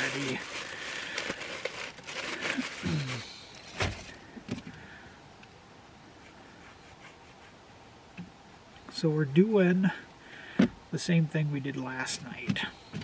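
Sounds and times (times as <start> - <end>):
rustling and handling: 0.0 - 4.8.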